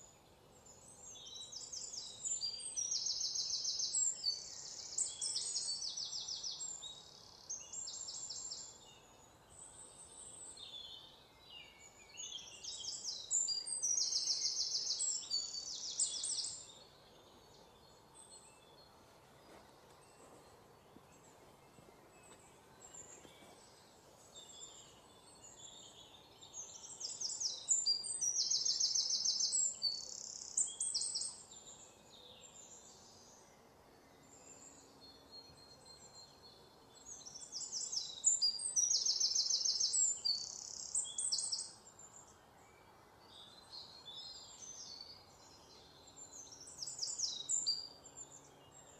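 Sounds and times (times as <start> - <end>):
faint steady hiss: 0.0 - 48.9.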